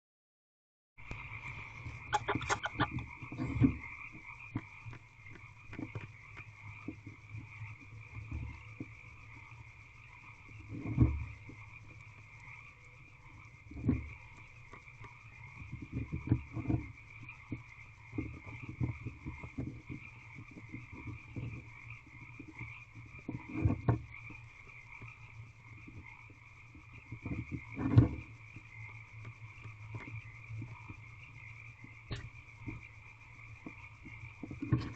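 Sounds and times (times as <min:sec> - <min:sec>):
frogs trilling: 0:01.0 - 0:34.9.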